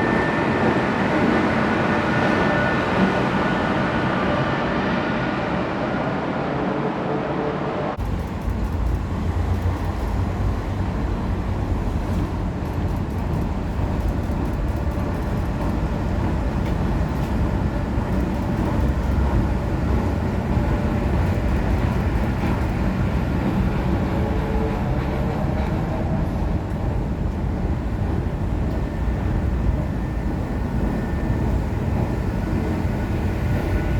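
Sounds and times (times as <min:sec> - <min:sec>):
train rumbling: 0:00.0 - 0:33.9.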